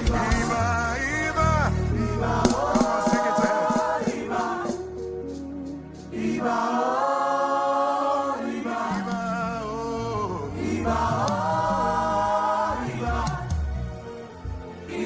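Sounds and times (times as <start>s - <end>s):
low bass notes: 0.0s - 3.2s, 9.2s - 14.8s
gospel worship singing: 0.0s - 15.0s.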